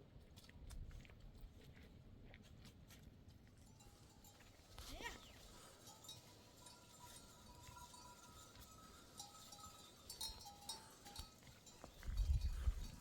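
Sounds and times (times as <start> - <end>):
livestock bells ringing: 3.6 - 13.0
sharp bell clinks: 5.0 - 13.0.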